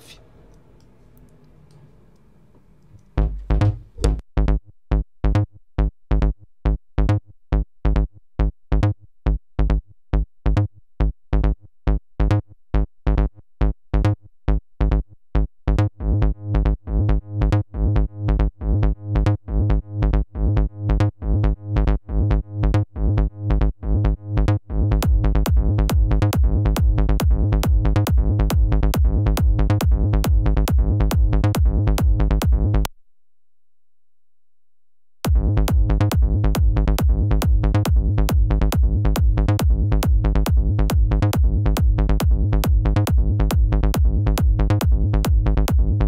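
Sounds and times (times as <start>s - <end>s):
plucky synth bass notes: 3.2s - 4.2s, 24.8s - 32.9s, 35.3s - 46.0s
kick drum: 24.8s - 32.9s, 35.3s - 46.0s.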